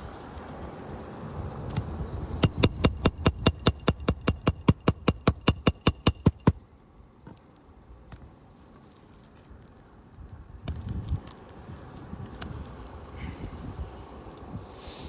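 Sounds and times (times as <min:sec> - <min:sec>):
hammer driving nails: 0:02.4 - 0:06.6.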